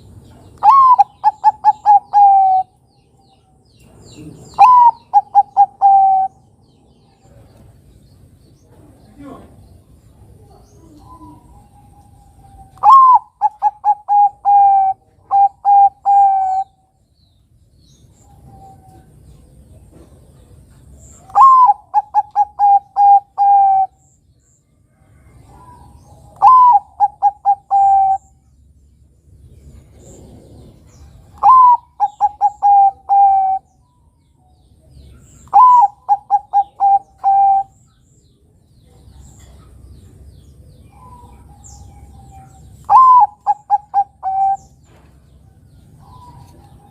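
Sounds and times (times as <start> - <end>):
dove cooing: 0.6 - 2.8, 4.2 - 6.4, 10.3 - 16.8, 21.2 - 24.0, 25.2 - 28.4, 29.8 - 33.8, 35.2 - 37.8, 40.9 - 44.8.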